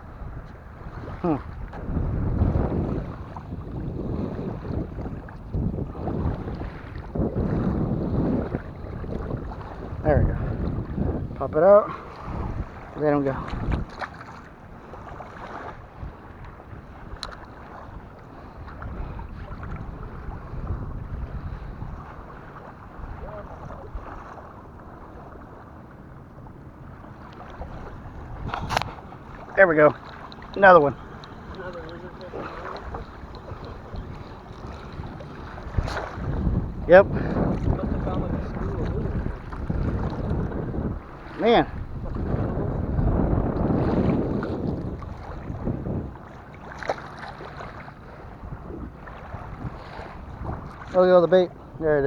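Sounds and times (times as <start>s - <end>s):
surf washing on beach: 0.0s - 52.0s
wind buffeting microphone: 0.0s - 52.0s
sharp click: 28.5s - 28.9s.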